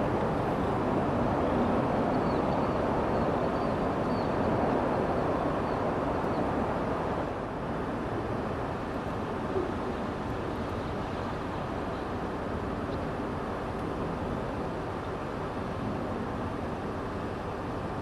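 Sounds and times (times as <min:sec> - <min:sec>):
rushing wind: 0:00.0 - 0:18.0.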